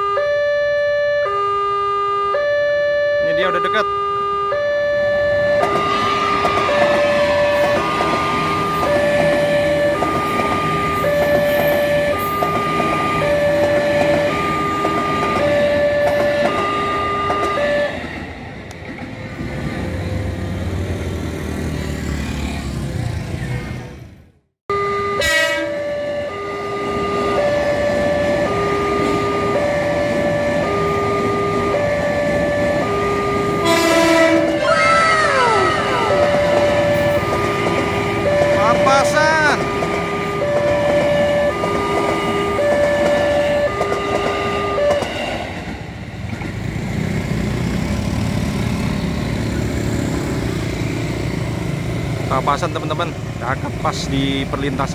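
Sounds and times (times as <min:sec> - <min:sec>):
level-crossing two-tone alarm chime: 0:00.0 - 0:18.0, 0:24.7 - 0:33.7, 0:35.3 - 0:45.1
electric train passing: 0:04.0 - 0:54.9.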